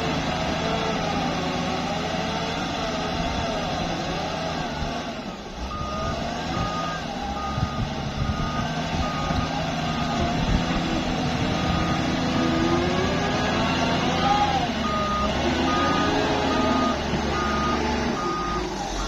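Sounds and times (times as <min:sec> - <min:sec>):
diesel engine running: 0:00.0 - 0:19.0
reversing alarm beeping: 0:05.7 - 0:10.5, 0:11.5 - 0:19.0.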